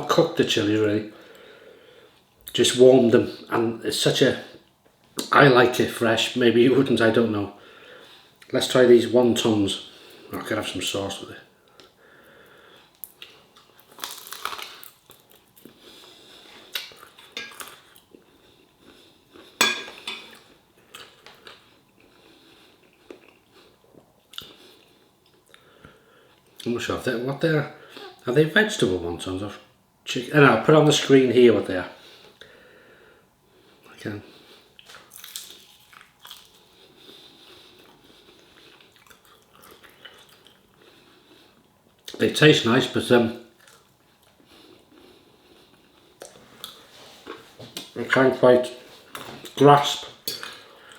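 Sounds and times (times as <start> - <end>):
person chewing crispy food: 13.0 - 19.6, 20.2 - 25.6, 34.8 - 42.2, 43.5 - 47.8
cutlery clinking on a plate: 17.4 - 17.7, 19.6 - 20.4.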